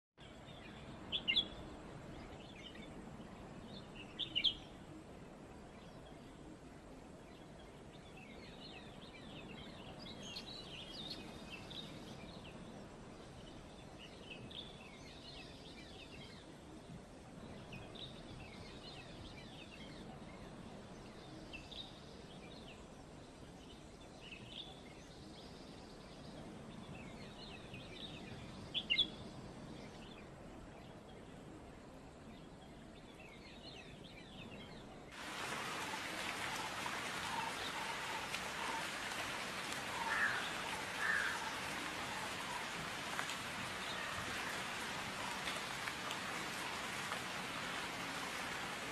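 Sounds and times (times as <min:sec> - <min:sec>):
low background hiss: 0:00.2 - 0:48.9
birds chirping and calling: 0:35.5 - 0:45.9.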